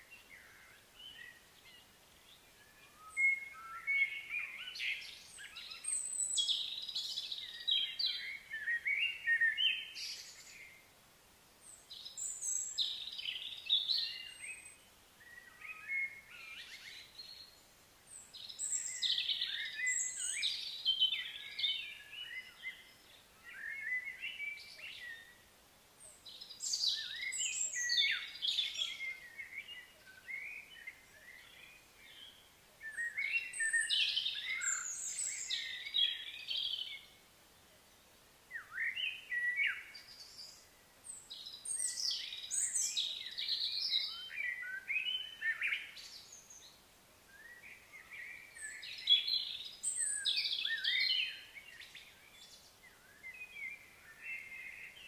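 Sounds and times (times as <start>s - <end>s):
songbirds singing and chattering: 0.0s - 55.0s.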